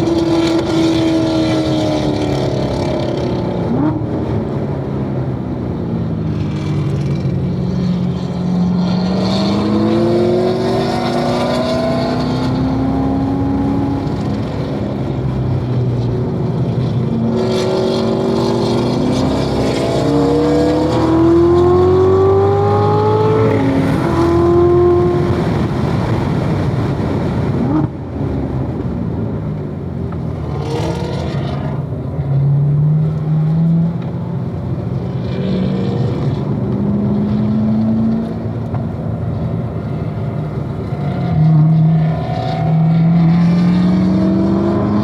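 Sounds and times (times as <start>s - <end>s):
car engine revving hard: 8.4s - 15.1s, 17.2s - 28.0s, 40.5s - 45.0s.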